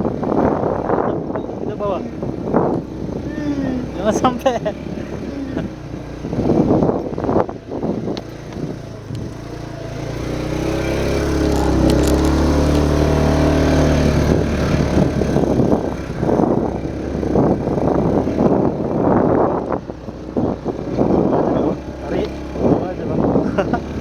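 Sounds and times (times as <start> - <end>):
vehicle engine revving hard: 2.2 - 24.0.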